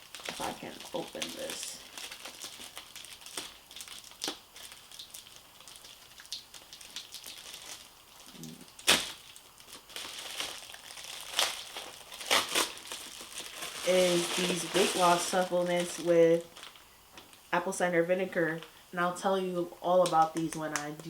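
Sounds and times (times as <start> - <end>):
packaging crinkling and rustling: 0.0 - 17.4
packaging snapping: 7.0 - 16.8.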